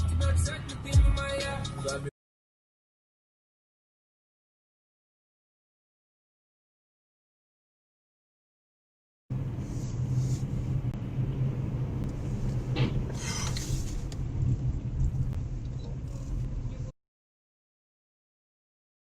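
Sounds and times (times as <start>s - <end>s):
car engine and road noise: 9.3s - 17.0s.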